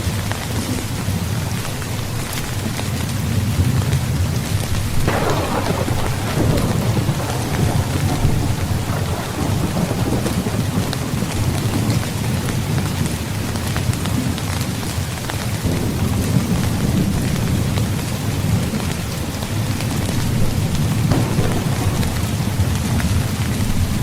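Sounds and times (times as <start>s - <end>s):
heavy rain: 0.0s - 24.0s
low thunder rumble: 3.2s - 14.4s, 15.6s - 24.0s
sharp thunderclap: 4.8s - 13.1s, 20.3s - 24.0s.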